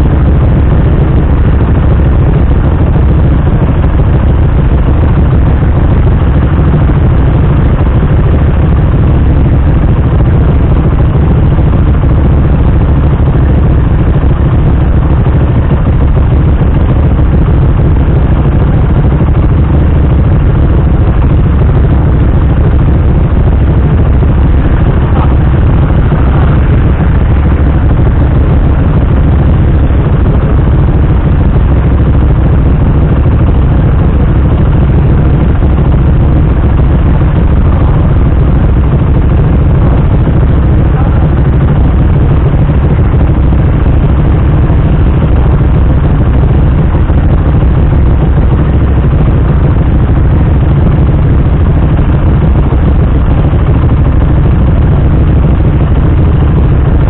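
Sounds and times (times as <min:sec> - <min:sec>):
motorcycle idling: 0:00.0 - 0:57.0.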